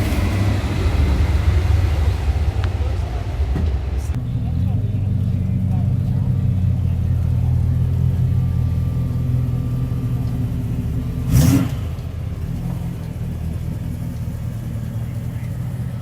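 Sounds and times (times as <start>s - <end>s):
loud engine burst: 0.0s - 4.1s, 11.2s - 12.0s
car engine rumbling: 0.0s - 16.0s.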